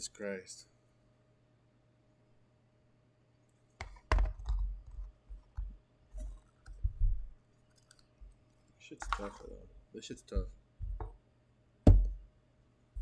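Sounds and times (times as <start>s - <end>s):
plastic packaging clicks and knocks: 3.8s - 5.7s, 11.9s - 12.2s
dull thumps: 10.3s - 11.2s, 11.9s - 12.3s.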